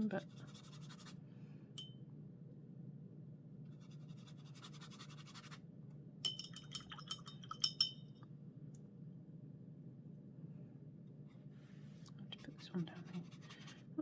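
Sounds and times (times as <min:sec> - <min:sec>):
paintbrush clinking against glass jar: 0:06.2 - 0:08.1
brush scrubbing softly: 0:11.2 - 0:14.0.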